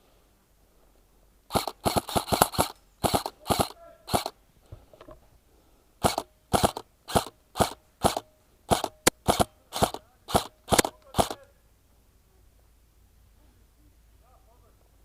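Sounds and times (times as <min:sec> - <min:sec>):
airsoft rifle shots: 0:01.5 - 0:04.4, 0:06.0 - 0:11.5.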